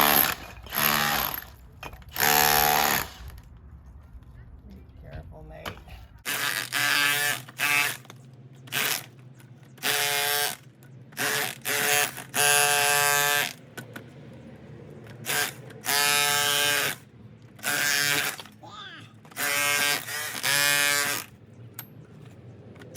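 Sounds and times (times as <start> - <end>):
electric chipping hammer: 0.0 - 3.4, 6.3 - 8.1, 8.7 - 9.1, 9.8 - 13.6, 15.2 - 17.0, 17.6 - 18.6, 19.3 - 21.3.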